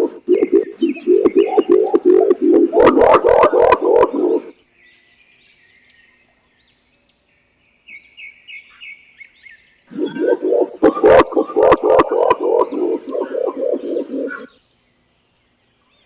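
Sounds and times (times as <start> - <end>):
pigeon cooing: 0.0 - 4.5, 9.9 - 14.5
small birds chirping: 0.0 - 16.0.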